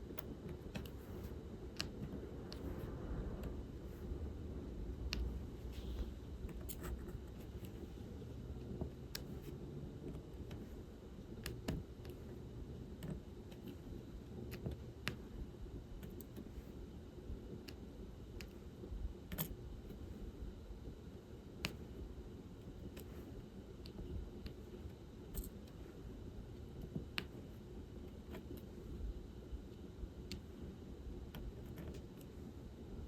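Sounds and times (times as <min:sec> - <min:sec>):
low room hum: 0:00.0 - 0:33.0
light clicks and taps: 0:00.1 - 0:02.8, 0:05.1 - 0:05.4, 0:26.8 - 0:27.5, 0:29.7 - 0:30.6.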